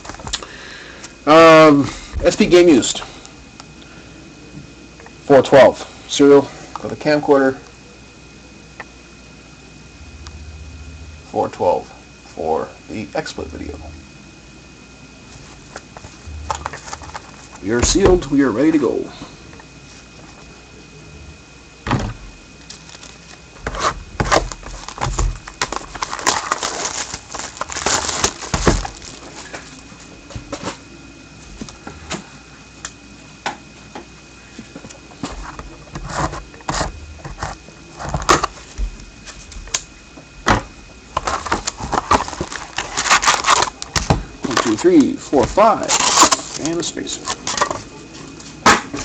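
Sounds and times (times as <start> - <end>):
wrapper and cardboard ripping: 22.8 - 29.5, 41.2 - 43.8, 45.4 - 47.6.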